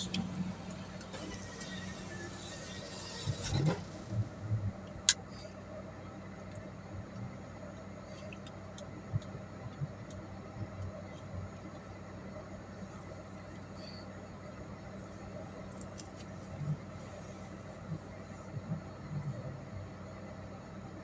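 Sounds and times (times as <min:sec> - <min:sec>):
car engine hum from inside: 0:00.0 - 0:21.0.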